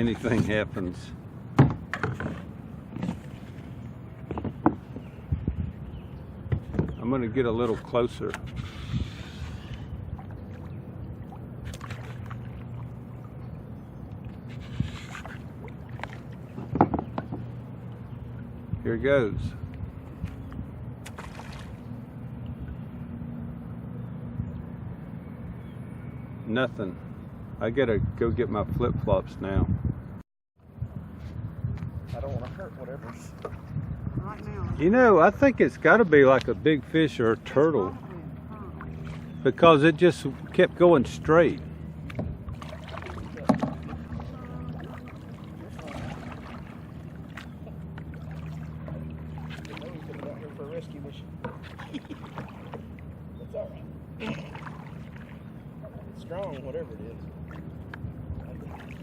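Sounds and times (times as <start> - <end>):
wind and water rumble: 0.0 - 59.0
faint knocks against hull: 0.2 - 0.8, 1.5 - 5.6, 6.4 - 7.0, 15.2 - 17.6, 31.8 - 33.7, 42.0 - 50.4, 51.4 - 53.0
steady low hum: 29.8 - 59.0.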